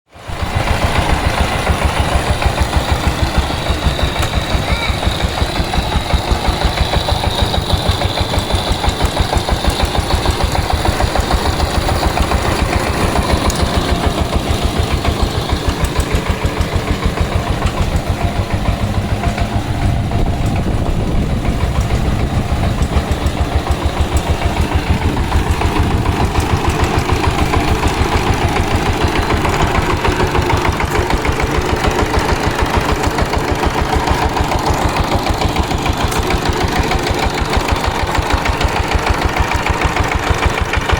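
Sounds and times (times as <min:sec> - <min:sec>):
power tiller engine chugging: 0:00.1 - 0:40.9.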